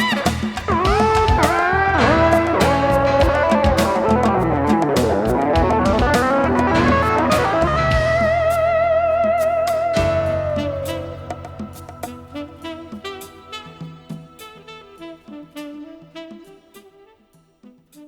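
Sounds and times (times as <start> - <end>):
bass guitar: 0.0 - 13.5
drums: 0.0 - 15.8
electric guitar solo: 0.0 - 16.5.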